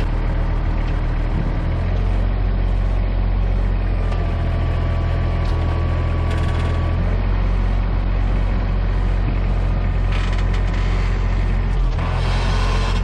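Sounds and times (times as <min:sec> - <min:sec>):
tractor engine running: 0:00.0 - 0:13.0
implement creaking: 0:05.4 - 0:07.1, 0:09.8 - 0:13.0.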